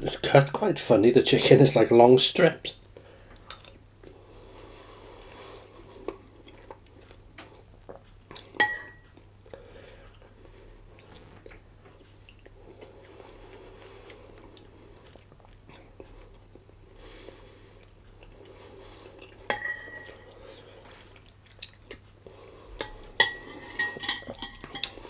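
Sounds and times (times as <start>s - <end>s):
person chewing food: 5.3s - 22.6s
utensil clinking against dish: 22.8s - 25.0s.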